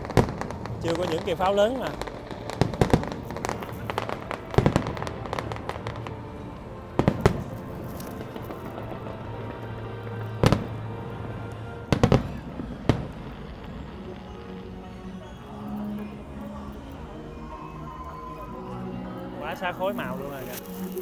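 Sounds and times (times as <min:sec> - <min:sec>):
fireworks bangs: 0:00.0 - 0:16.1
fireworks crackle: 0:00.0 - 0:17.6, 0:18.2 - 0:21.0
background music: 0:00.0 - 0:21.0.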